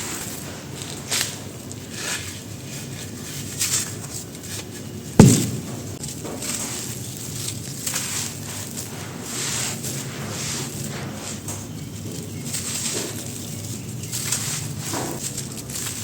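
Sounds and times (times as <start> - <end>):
heavy thump: 5.2 - 6.0.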